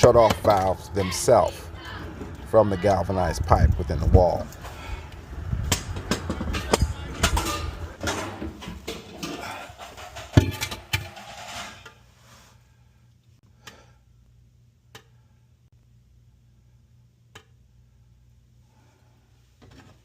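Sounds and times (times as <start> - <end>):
tools and metal parts clattering: 5.9 - 11.9.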